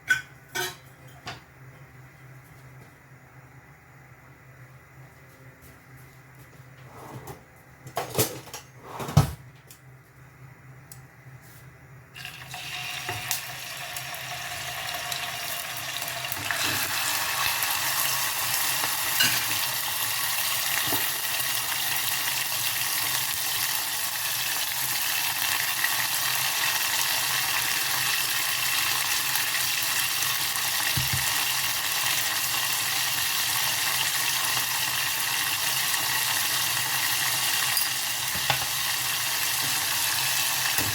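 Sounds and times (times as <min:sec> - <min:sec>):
cookware clattering: 0:00.1 - 0:01.4, 0:19.2 - 0:19.6
food sizzling in a pan: 0:12.2 - 0:40.9.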